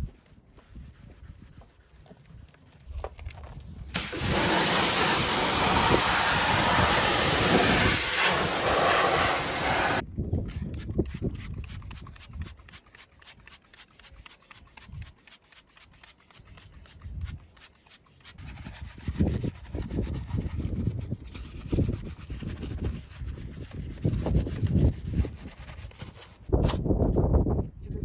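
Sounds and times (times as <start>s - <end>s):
scrubbing a car: 4.0s - 10.0s.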